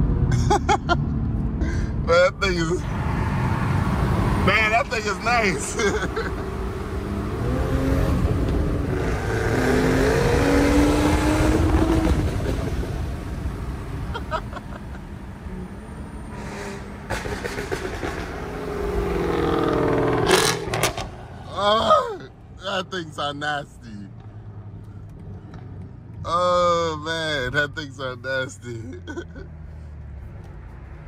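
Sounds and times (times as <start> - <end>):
sports car engine accelerating: 5.7 - 21.4
exhaust pops: 19.8 - 21.2.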